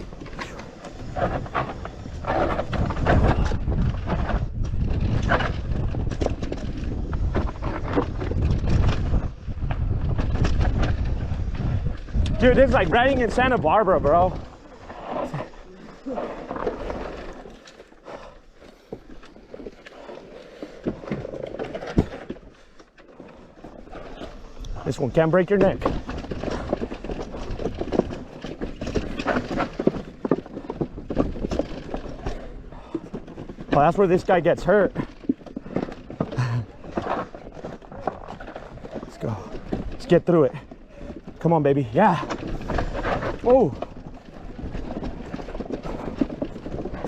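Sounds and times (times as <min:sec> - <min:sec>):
bike clattering over rocks: 0:00.0 - 0:47.0
wind buffeting microphone: 0:00.9 - 0:15.1.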